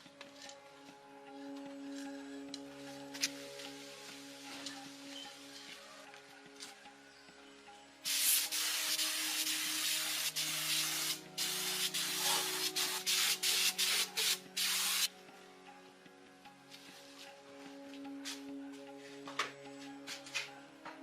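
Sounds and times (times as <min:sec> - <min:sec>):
spray gun hissing: 0:08.1 - 0:15.1.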